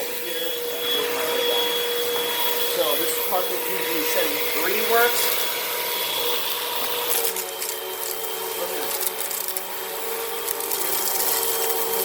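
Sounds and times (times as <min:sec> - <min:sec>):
vacuum cleaner running: 0:00.0 - 0:12.0
sand crackling in vacuum: 0:07.1 - 0:12.0.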